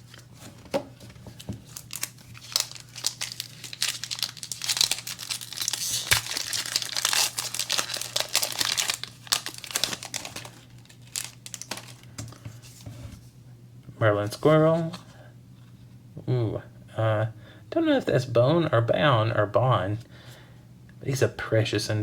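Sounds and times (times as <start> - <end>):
foil wrapper crinkling and tearing: 1.4 - 12.4.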